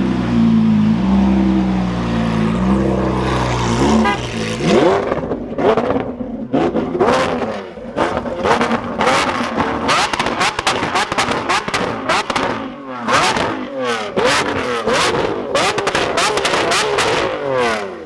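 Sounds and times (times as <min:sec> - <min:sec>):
sports car engine revving: 0:00.0 - 0:18.0.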